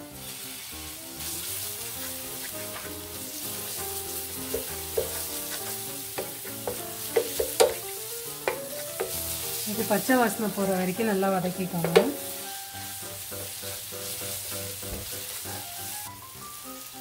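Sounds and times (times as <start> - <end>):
onions sizzling in hot oil: 0.0 - 17.0
spatula knocking and scraping pan: 2.6 - 10.1, 11.0 - 12.5, 13.3 - 15.6.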